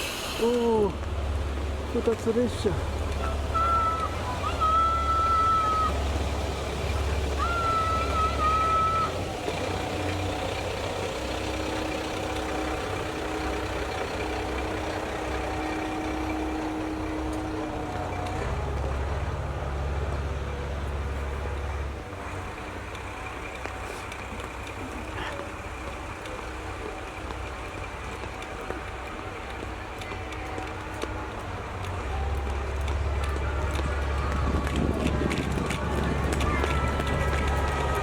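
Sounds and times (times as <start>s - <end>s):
diesel engine rumbling: 0.0s - 38.0s
train horn blast: 11.8s - 19.7s.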